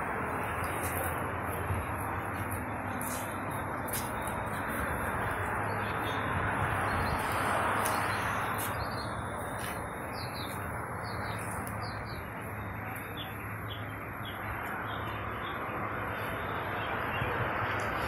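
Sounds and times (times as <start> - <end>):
street noise: 0.0 - 18.0
small birds chirping: 6.8 - 15.6.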